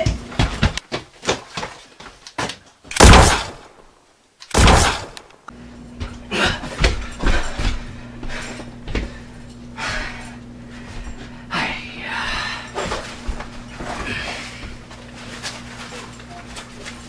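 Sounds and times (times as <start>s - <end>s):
steady low hum: 2.9s - 17.0s
loud bangs: 3.0s - 3.8s, 4.5s - 5.2s.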